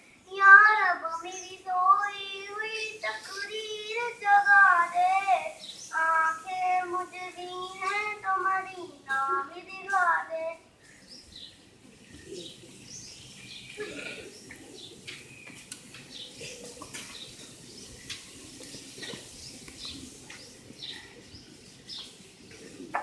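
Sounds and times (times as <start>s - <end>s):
birds chirping: 0.0s - 23.0s
faint low murmur: 4.9s - 23.0s.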